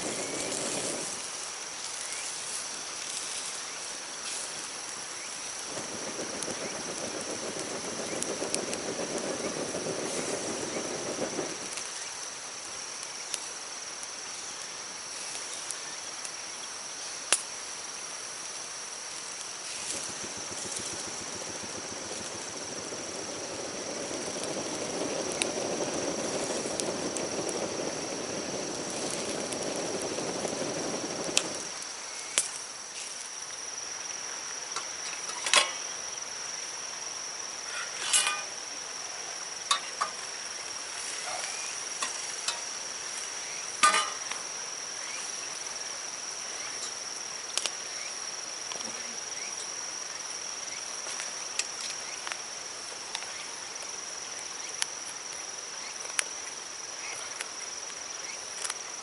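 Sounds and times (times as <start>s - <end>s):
insects chirring: 0.0s - 59.0s
low rushing noise: 19.8s - 31.8s.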